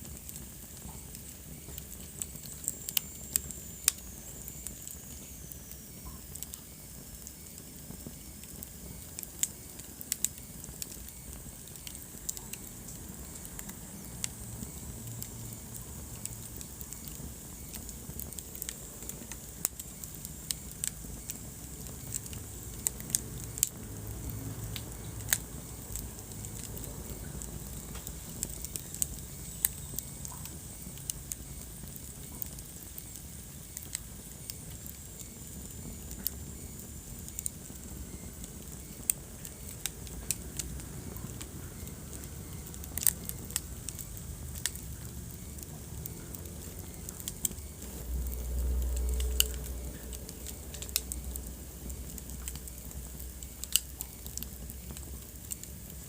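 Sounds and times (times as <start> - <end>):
wood fire crackling and popping: 0.0 - 56.0
low rumble: 45.0 - 53.5.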